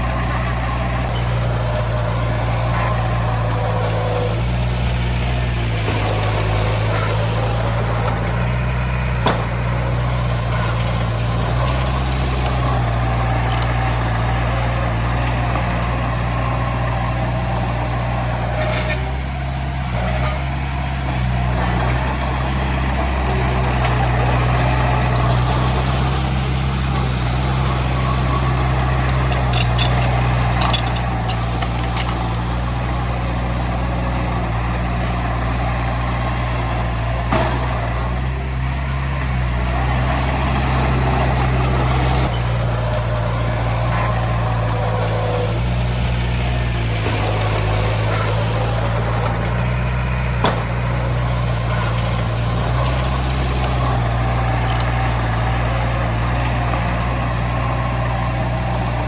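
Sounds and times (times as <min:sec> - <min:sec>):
heavy diesel engine under load: 0:00.0 - 0:59.0
sharp metallic clanks: 0:23.0 - 0:32.5.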